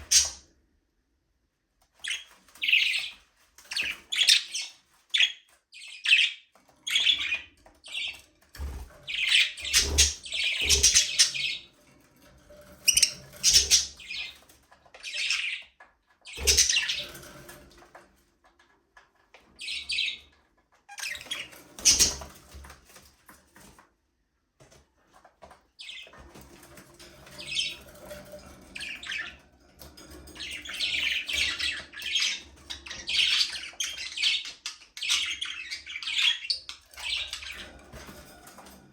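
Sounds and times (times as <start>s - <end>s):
budgerigars chirping: 0.0s - 0.4s, 3.7s - 8.2s, 9.1s - 11.6s, 12.9s - 14.4s, 15.0s - 15.7s, 16.3s - 17.2s, 21.0s - 22.2s, 30.4s - 37.6s.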